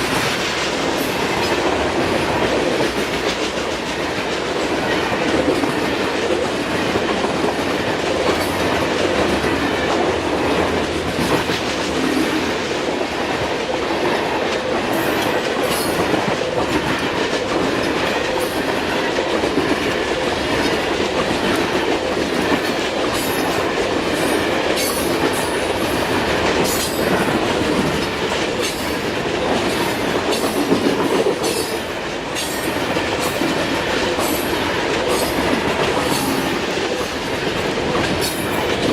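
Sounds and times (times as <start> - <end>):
wheels rumbling on rail: 0.0 - 38.9.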